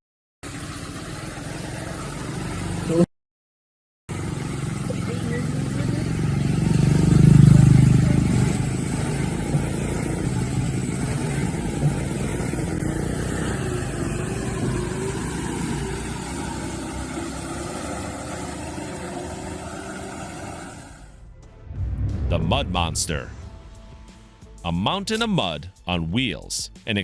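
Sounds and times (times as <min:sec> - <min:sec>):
truck engine rumbling: 0:04.1 - 0:25.6.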